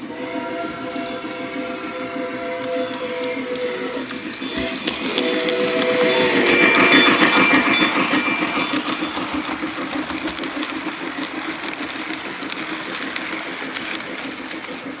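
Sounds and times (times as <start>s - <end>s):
steam whistle: 0.0s - 10.7s
model train motor and track noise: 0.0s - 15.0s
rhythmic steam chuffing: 0.0s - 15.0s.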